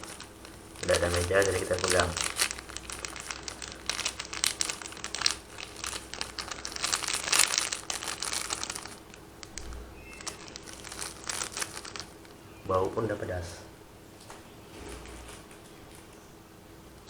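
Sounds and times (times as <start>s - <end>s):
plastic sachets crinkling and tearing: 0.0s - 13.1s.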